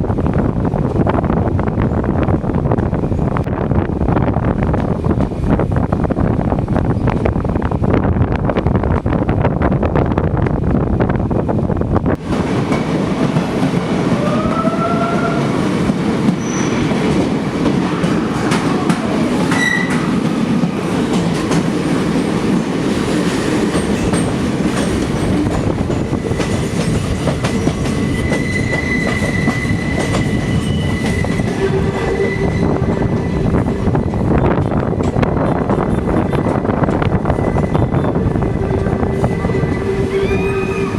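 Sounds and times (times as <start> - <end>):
train wheels rumbling on rails: 0.0 - 40.9
wheel squeal: 16.4 - 16.9, 27.5 - 32.7.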